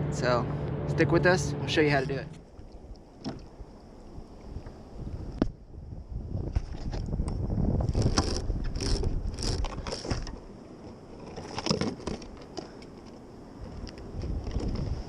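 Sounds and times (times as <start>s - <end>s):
wind buffeting microphone: 0.0s - 10.5s, 13.5s - 15.0s
gear scraping and knocking: 7.8s - 15.0s.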